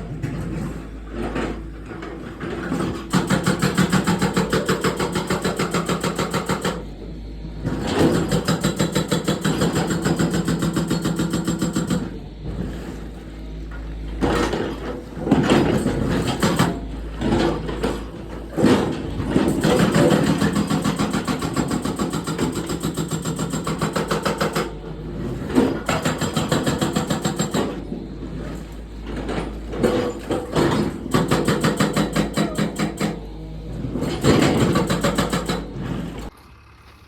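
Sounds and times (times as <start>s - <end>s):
excavator diesel engine working: 0.0s - 37.0s.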